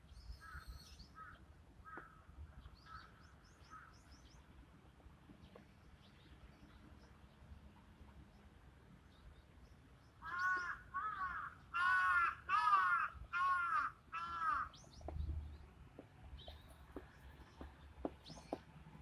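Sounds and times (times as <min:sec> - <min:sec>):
bird calling: 0:10.2 - 0:15.2.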